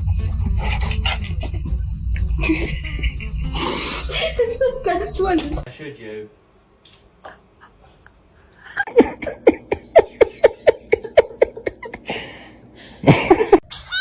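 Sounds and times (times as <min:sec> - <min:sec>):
person laughing hard: 0:00.8 - 0:04.4, 0:08.6 - 0:12.4, 0:13.0 - 0:14.0.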